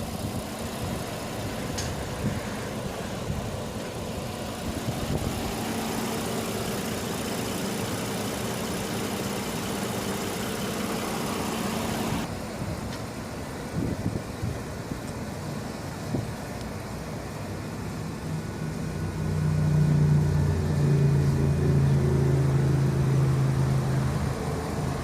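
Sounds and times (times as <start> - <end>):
car engine idling: 0.0 - 19.1.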